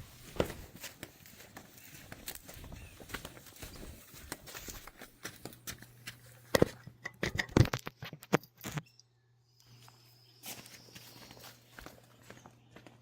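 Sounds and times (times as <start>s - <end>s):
footsteps: 0.0s - 6.8s, 9.8s - 13.0s
handling knocks: 0.2s - 0.8s.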